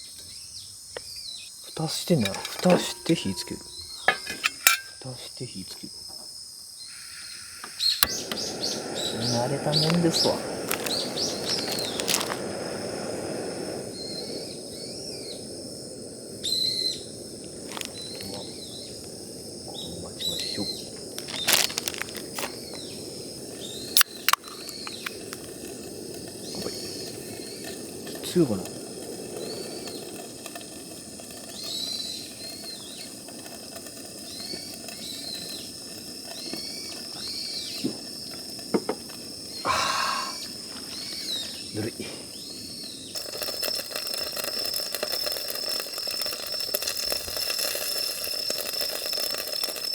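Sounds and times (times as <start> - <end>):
small birds chirping: 0.0 - 49.9
steady low hiss: 0.0 - 49.9
steady rushing noise: 7.5 - 39.7
sharp clicks: 7.6 - 12.6, 20.2 - 39.6.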